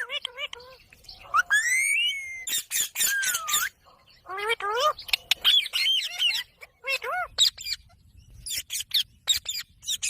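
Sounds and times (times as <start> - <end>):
parakeet calls and squawks: 0.0 - 10.0.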